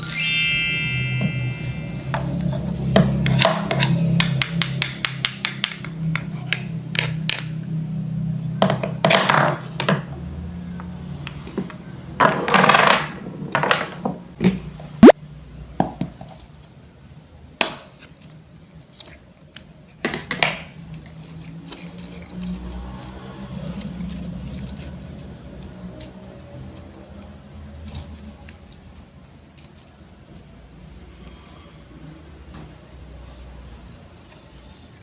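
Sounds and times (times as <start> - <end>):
sharp rising squeak: 0.0 - 2.1.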